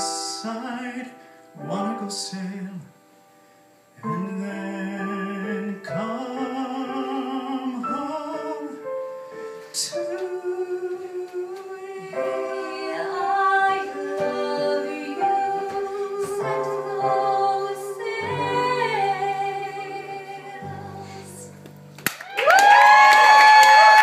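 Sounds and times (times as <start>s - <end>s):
piano chords: 0.0s - 24.0s
people singing a duet: 9.8s - 21.6s.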